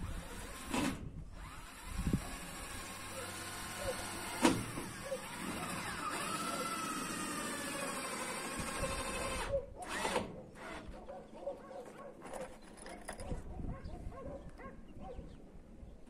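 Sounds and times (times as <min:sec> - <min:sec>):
short motor bursts: 0:00.0 - 0:11.0
small motor running: 0:01.3 - 0:10.9.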